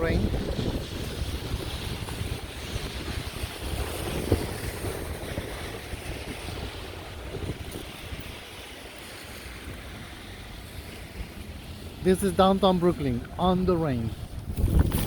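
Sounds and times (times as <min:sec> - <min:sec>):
heavy rain on street: 0:00.0 - 0:12.0
wind buffeting microphone: 0:00.0 - 0:15.0.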